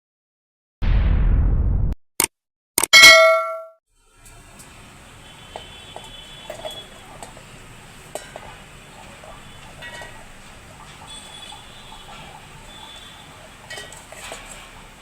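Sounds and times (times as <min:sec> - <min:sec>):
loud metallic ding: 0:02.9 - 0:03.7.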